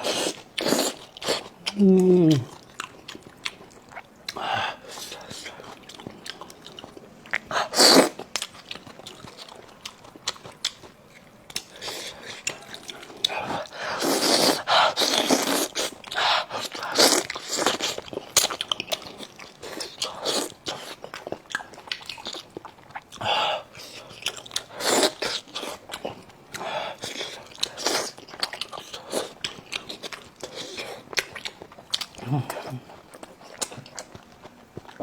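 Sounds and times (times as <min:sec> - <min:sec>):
person biting and chewing: 0:00.0 - 0:03.6.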